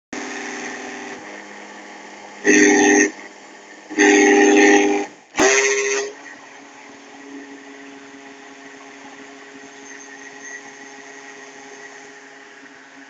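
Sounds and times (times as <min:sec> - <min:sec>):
blender running: 0:00.2 - 0:13.0.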